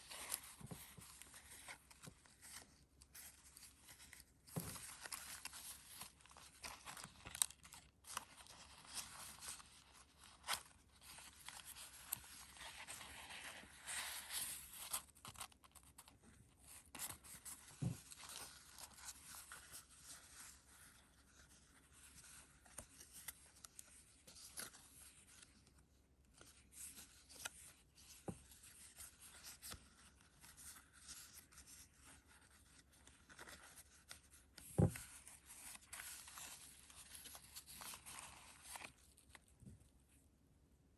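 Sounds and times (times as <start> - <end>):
paper pages rustling: 0.0 - 39.5.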